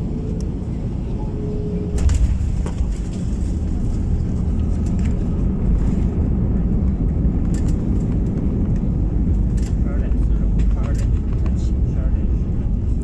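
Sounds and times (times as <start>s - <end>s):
jet engine cabin rumble: 0.0s - 13.0s.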